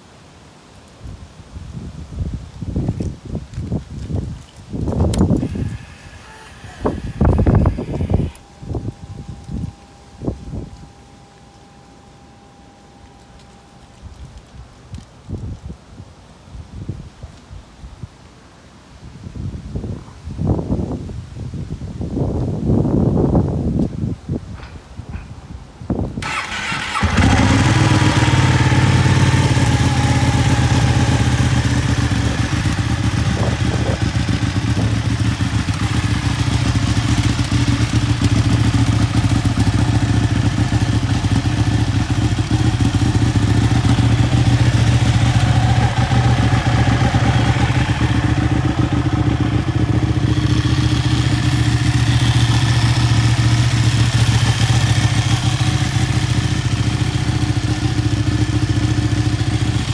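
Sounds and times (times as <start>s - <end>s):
motorcycle engine starting and idling: 4.0s - 15.6s, 26.0s - 59.9s.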